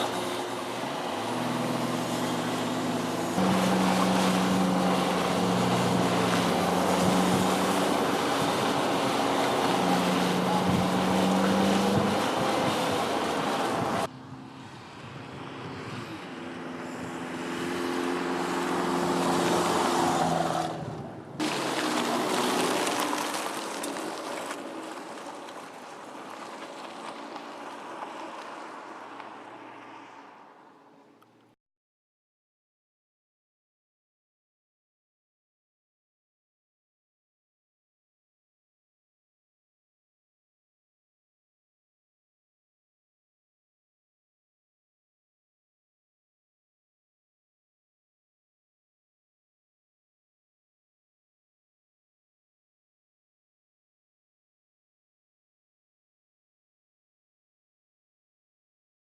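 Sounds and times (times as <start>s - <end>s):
car engine running: 0.0s - 14.1s
tyre and road noise: 0.0s - 31.6s.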